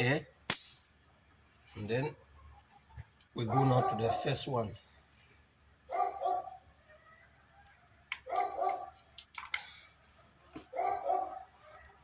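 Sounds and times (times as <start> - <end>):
dog barking: 3.5 - 4.4, 5.9 - 7.2, 8.2 - 9.0, 10.6 - 12.0.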